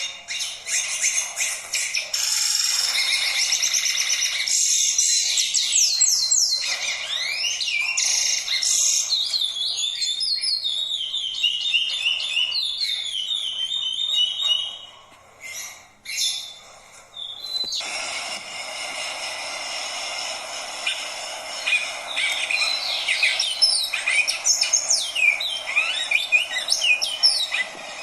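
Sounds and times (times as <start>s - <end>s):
songbirds trilling and whistling: 0.0s - 28.0s.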